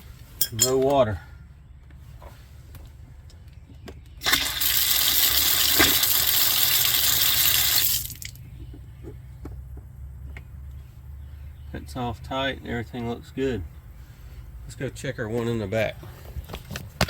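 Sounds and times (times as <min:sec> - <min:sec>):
water gushing from faucet: 0:04.2 - 0:08.4.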